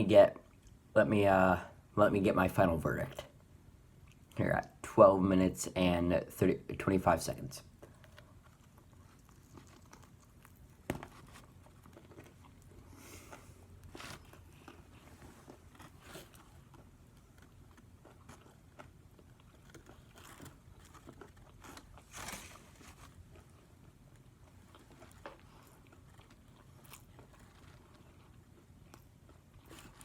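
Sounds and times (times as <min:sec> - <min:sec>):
person chewing crunchy food: 0:07.8 - 0:30.0.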